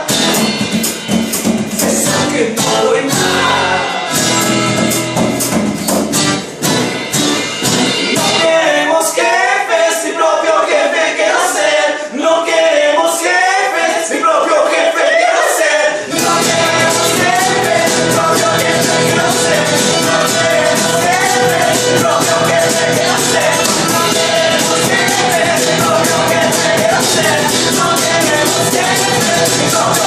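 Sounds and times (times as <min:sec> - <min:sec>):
band playing: 0:00.0 - 0:09.0, 0:16.0 - 0:30.0
people singing: 0:01.7 - 0:04.9, 0:08.1 - 0:30.0.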